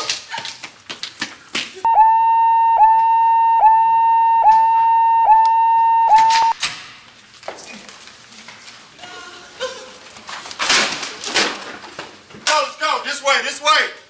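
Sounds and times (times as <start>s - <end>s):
electronic evacuation alarm: 1.9s - 6.6s.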